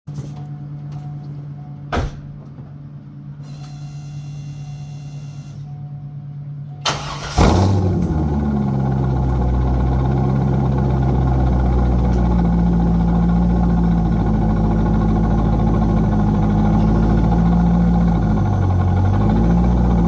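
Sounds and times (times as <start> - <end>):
faint whine: 0.1 - 6.9
steady low hum: 0.1 - 20.0
car engine idling loudly: 7.0 - 20.0.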